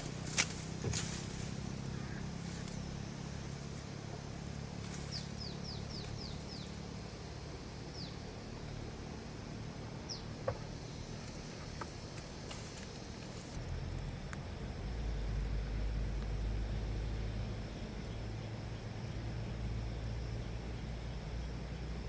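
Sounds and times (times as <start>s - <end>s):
bird chirping: 0.0s - 7.0s
steady low hum: 0.0s - 22.0s.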